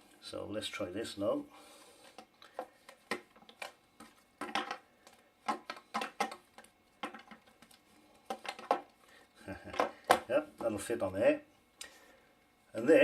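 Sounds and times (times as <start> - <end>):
plastic parts knocking and clicking: 2.1 - 9.0, 9.6 - 10.8.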